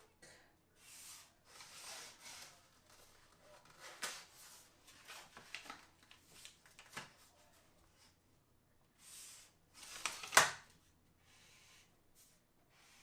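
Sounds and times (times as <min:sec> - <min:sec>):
vinyl sheet rustling: 0:00.9 - 0:07.7, 0:09.8 - 0:10.6.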